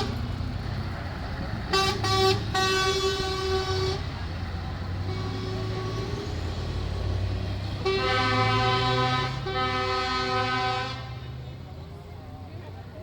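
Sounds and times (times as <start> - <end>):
truck air horn blasts: 0.0 - 0.3, 1.7 - 4.2, 4.9 - 6.9, 7.6 - 11.4
truck engines rumbling: 0.0 - 13.0.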